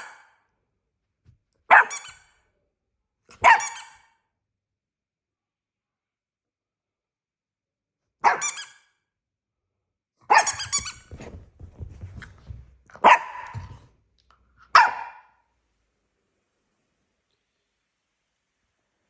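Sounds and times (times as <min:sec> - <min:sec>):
puppy barking: 0:00.0 - 0:00.3, 0:01.7 - 0:02.2, 0:03.3 - 0:04.1, 0:08.2 - 0:08.7, 0:10.3 - 0:11.4, 0:12.9 - 0:13.8, 0:14.7 - 0:15.4
soft low thuds: 0:10.7 - 0:13.9.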